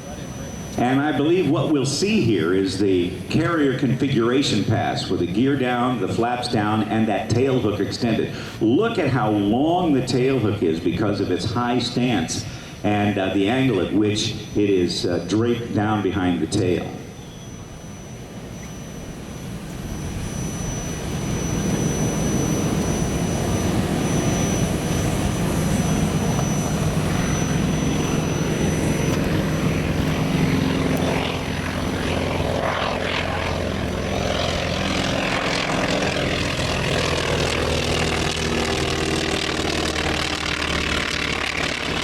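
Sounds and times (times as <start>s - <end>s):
radial aircraft engine droning: 0.0s - 42.0s
thin high whine: 0.0s - 42.0s.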